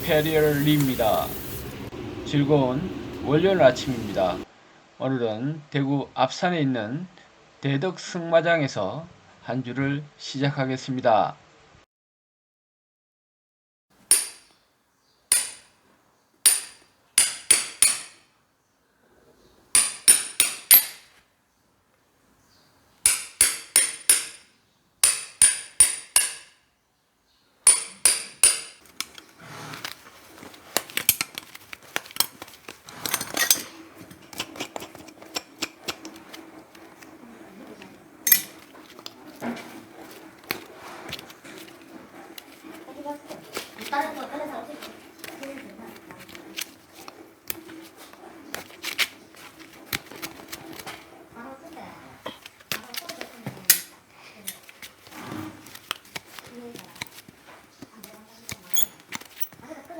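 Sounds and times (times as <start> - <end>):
background noise: 0.0 - 11.8, 13.9 - 59.9
hammer striking steel: 14.1 - 14.5, 15.3 - 15.7, 16.4 - 18.3, 19.8 - 21.2, 23.0 - 26.6, 27.7 - 29.2, 38.3 - 38.6, 58.7 - 59.6.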